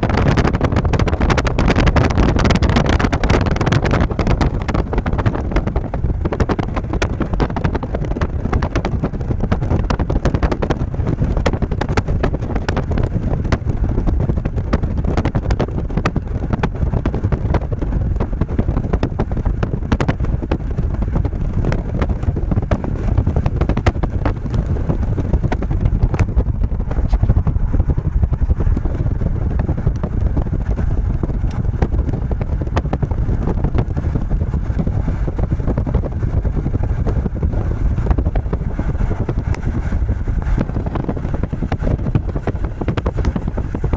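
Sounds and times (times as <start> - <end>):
wind buffeting microphone: 0.0 - 43.9.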